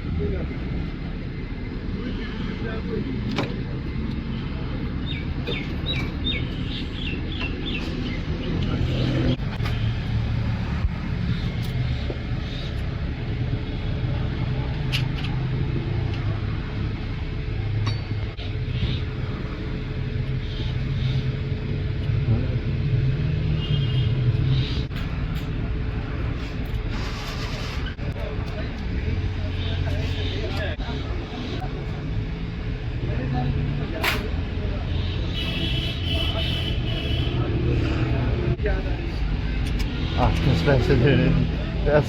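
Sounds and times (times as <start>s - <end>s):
bird chirping: 5.0s - 9.4s.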